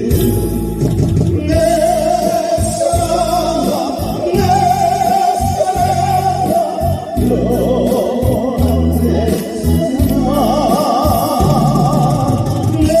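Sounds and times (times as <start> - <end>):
band accompaniment: 0.0 - 13.0
man singing ballad with vibrato: 0.0 - 13.0.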